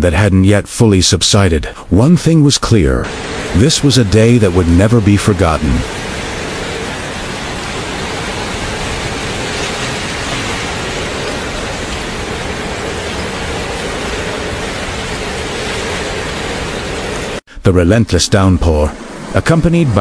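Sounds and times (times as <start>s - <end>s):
running floodwater: 2.7s - 17.4s
heavy rain: 3.0s - 17.4s.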